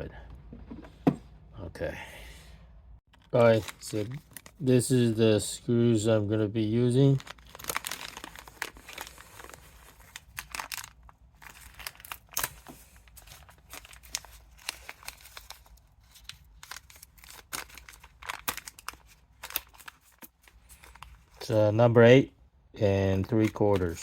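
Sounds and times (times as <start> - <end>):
plastic packaging crinkling: 3.2 - 4.6, 7.0 - 21.5.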